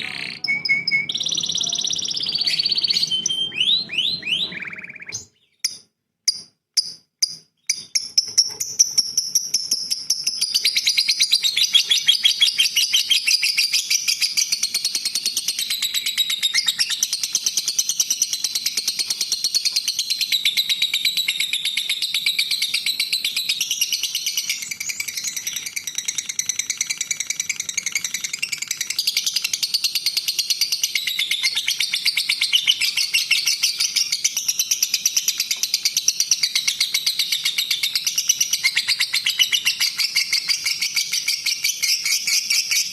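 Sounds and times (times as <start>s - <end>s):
songbird trilling and chirping: 0.0s - 14.6s.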